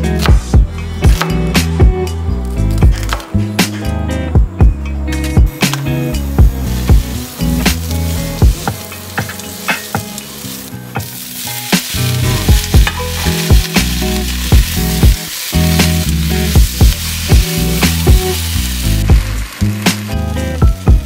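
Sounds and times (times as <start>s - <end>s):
onion sizzling in hot oil: 5.4s - 21.0s.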